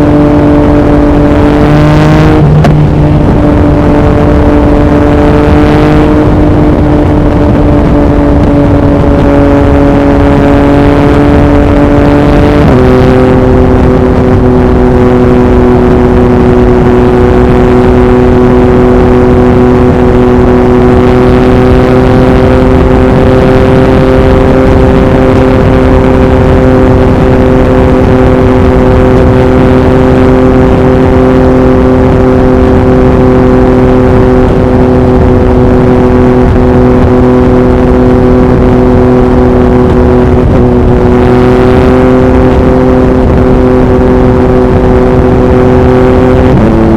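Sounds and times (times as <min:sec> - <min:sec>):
wind buffeting microphone: 0:00.0 - 0:21.1
motorcycle engine cruising: 0:00.0 - 0:46.9.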